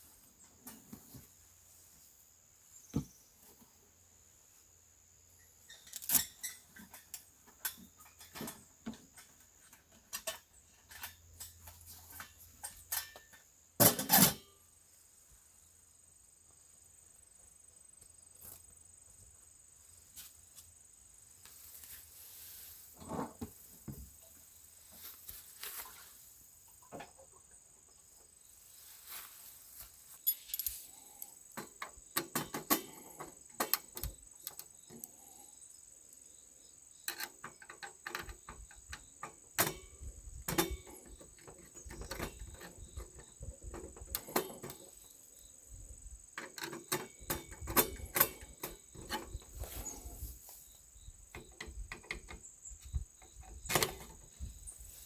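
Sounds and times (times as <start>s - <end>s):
objects being handled: 28.8s - 35.4s.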